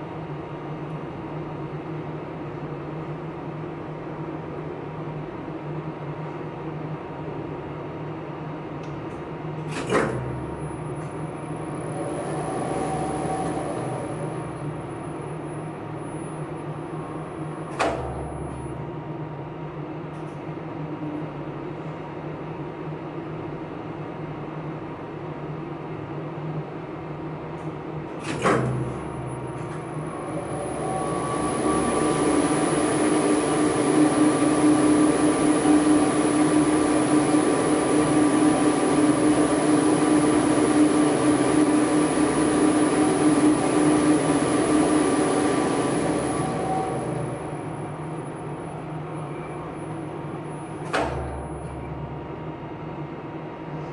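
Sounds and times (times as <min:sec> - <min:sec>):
machinery humming: 0:00.0 - 0:53.9
high whine: 0:10.4 - 0:19.4, 0:28.9 - 0:53.2.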